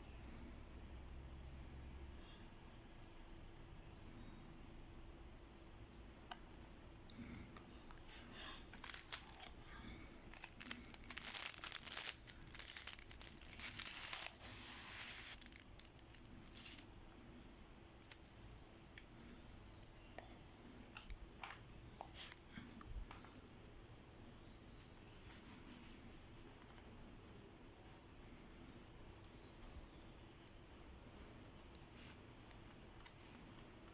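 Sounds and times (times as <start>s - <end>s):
plastic packaging crinkling: 8.4s - 9.6s, 10.3s - 16.9s.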